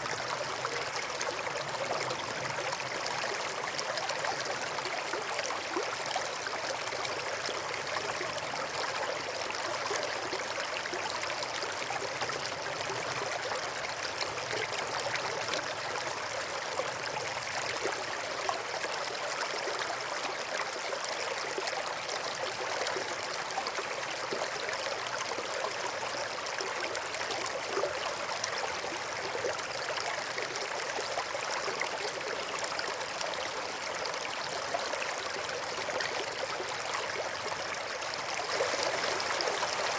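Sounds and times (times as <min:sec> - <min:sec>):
brook flowing: 0:00.0 - 0:39.9.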